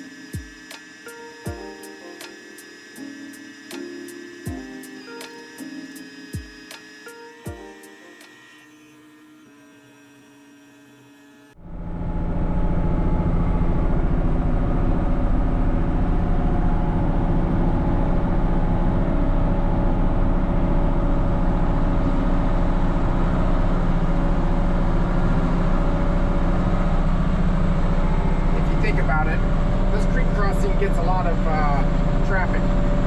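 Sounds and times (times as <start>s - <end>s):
tractor diesel engine running: 11.6s - 33.0s.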